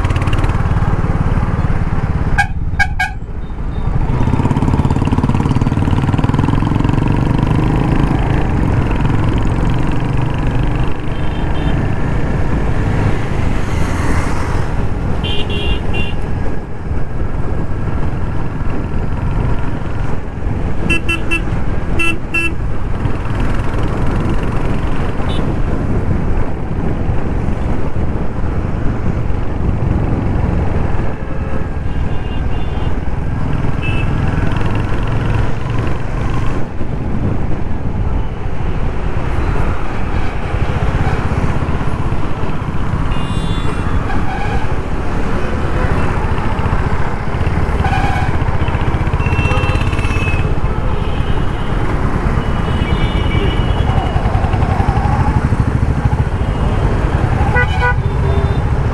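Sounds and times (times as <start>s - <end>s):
motorcycle engine running: 0.0s - 2.5s, 4.2s - 13.3s, 45.1s - 58.9s
surrounding traffic noise: 0.0s - 58.9s.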